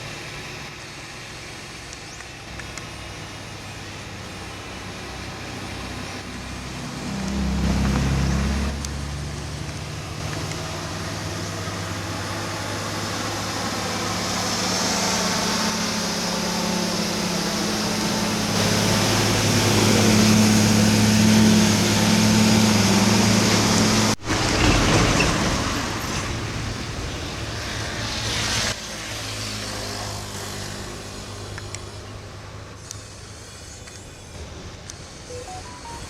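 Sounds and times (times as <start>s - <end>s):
diesel truck engine labouring: 3.0s - 28.7s.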